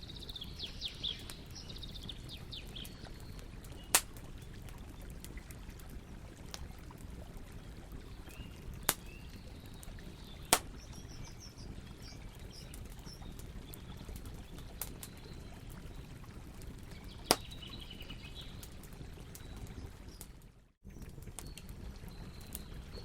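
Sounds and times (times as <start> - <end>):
campfire crackling: 0.2 - 23.0
loud fire pops: 3.9 - 4.3, 10.5 - 11.1, 17.3 - 17.6.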